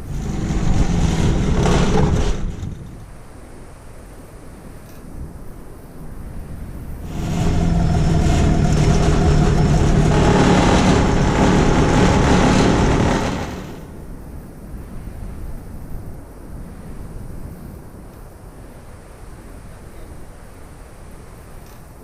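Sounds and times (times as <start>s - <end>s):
motor engine passing by: 0.0s - 2.8s, 7.0s - 14.0s.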